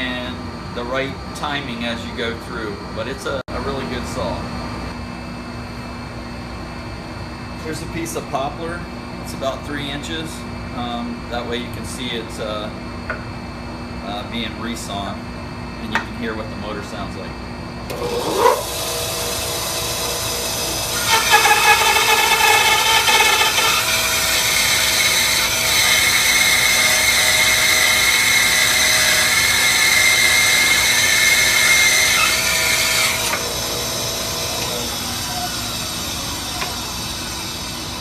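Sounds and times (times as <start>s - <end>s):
bandsaw blade cutting wood: 17.9s - 38.0s
bandsaw motor running: 17.9s - 38.0s.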